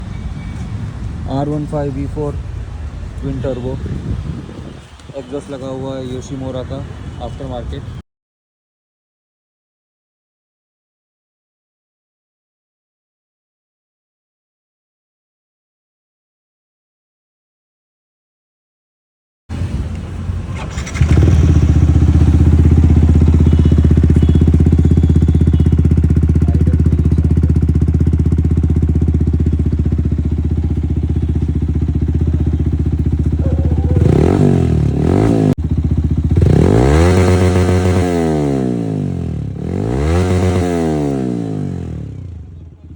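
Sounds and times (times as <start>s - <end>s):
motorcycle engine idling: 19.8s - 42.9s
throttle blips revving: 22.2s - 27.2s, 33.3s - 39.0s.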